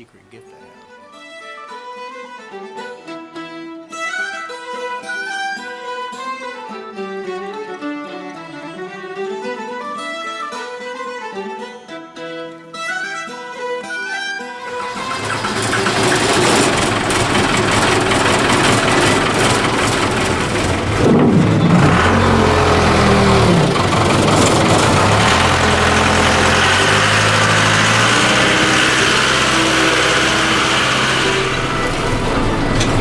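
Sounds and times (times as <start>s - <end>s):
backhoe engine running: 14.7s - 33.0s.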